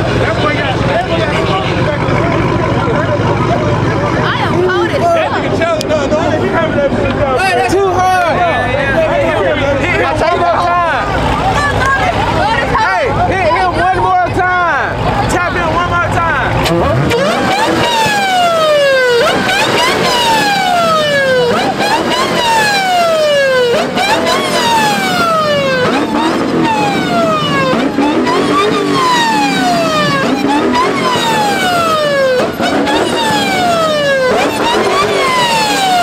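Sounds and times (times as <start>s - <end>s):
emergency vehicle siren wailing: 16.6s - 36.0s.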